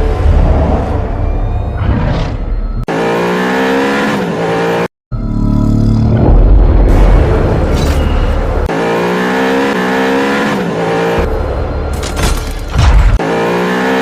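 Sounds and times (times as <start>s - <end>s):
motorcycle engine revving: 8.6s - 11.8s, 12.9s - 14.0s.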